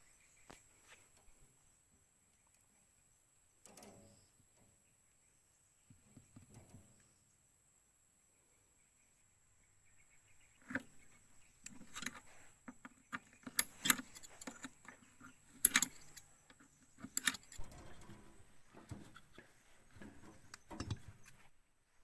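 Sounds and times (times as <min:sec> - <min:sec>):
metallic clinks and knocks: 0:11.6 - 0:21.4.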